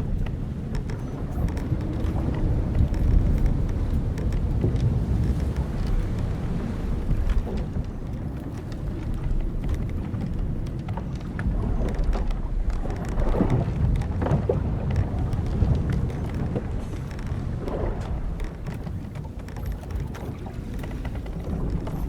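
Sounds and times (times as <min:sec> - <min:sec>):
wind and waves rumbling: 0:00.0 - 0:22.0
wooden hull creaking: 0:00.0 - 0:22.0.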